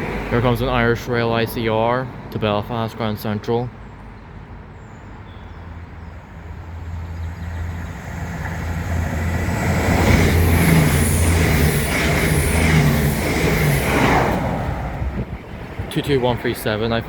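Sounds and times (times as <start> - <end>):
train passing fast: 0.0 - 1.4, 6.1 - 17.0.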